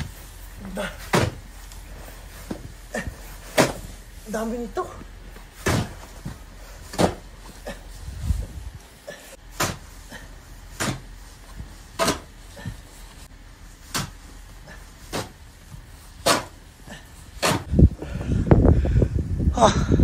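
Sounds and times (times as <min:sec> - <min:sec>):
snow shovel scraping snow: 0:00.1 - 0:04.9.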